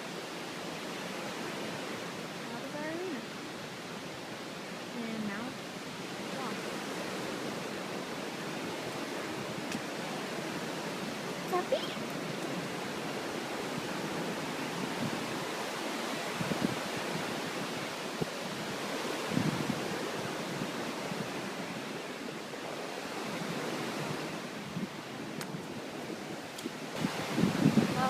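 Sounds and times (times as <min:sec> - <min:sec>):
flooded river rushing: 0:00.0 - 0:28.0.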